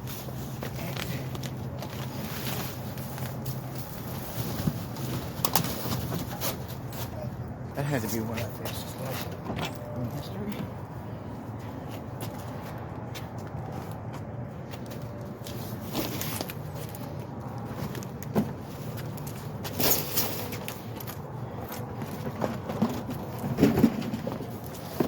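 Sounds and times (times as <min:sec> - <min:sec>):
knocks and clatters of handling: 0:12.2 - 0:25.0.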